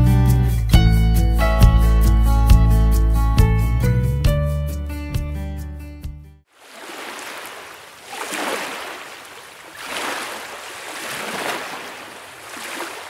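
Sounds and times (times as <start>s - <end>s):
sea waves washing in: 6.5s - 13.0s.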